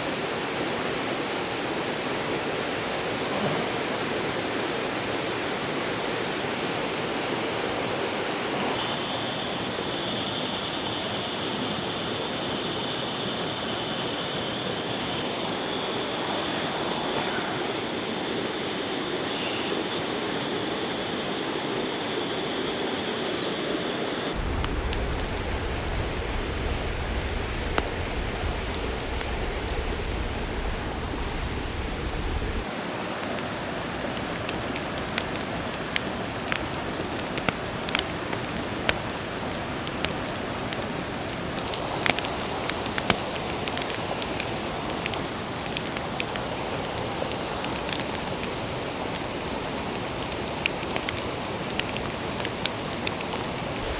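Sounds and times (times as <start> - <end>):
flowing river: 0.0 - 24.4, 32.1 - 53.9
low rumble: 24.4 - 32.6
sharp ticks and crackles: 24.4 - 53.9.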